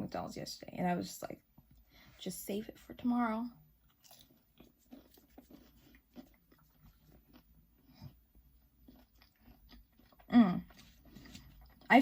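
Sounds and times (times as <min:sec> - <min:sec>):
person chewing: 0:03.8 - 0:11.9.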